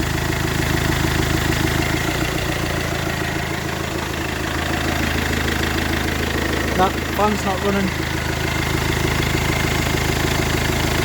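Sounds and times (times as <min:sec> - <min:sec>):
van engine idling: 0:00.0 - 0:11.0.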